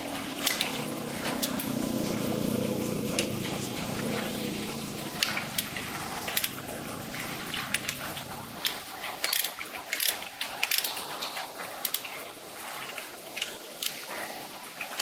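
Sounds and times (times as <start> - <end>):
low rumble: 0.0 - 8.9
metallic clicks of hand tools: 8.6 - 11.0, 11.8 - 12.1.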